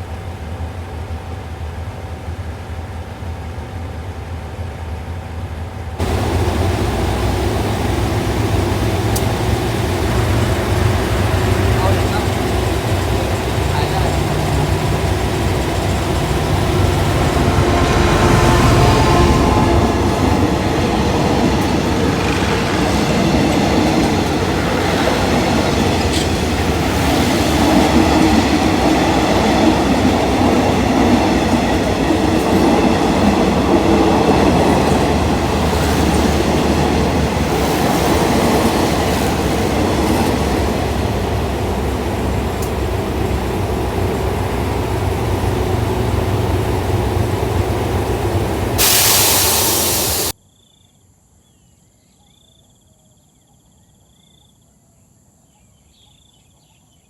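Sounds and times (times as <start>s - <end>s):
train rumbling on rails: 0.0s - 50.4s.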